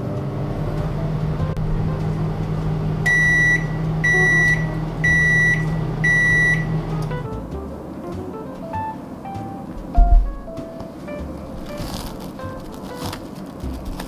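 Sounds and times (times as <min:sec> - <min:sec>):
microwave oven humming: 0:00.0 - 0:07.2
microwave timer beeps: 0:03.1 - 0:06.9.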